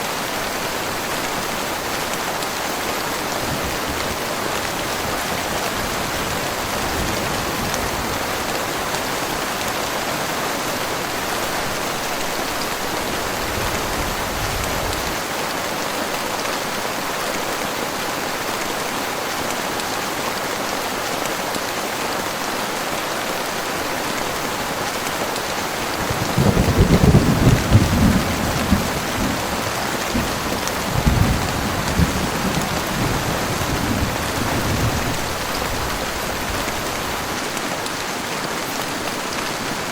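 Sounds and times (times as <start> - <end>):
heavy rain falling: 0.0 - 39.9
thunder rumbling: 26.0 - 37.0.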